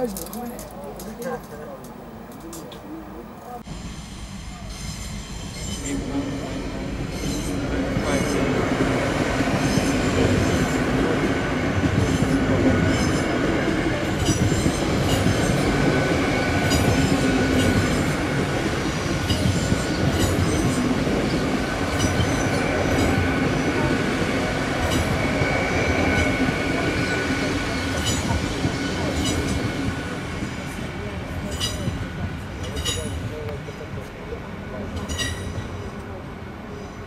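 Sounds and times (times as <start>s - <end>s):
wheels clicking: 0.0s - 3.6s
train wheels on rails: 0.0s - 37.0s.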